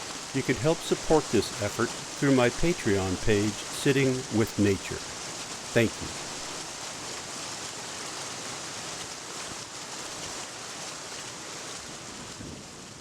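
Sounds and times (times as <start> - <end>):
outdoor nature ambience rushing: 0.0 - 8.8.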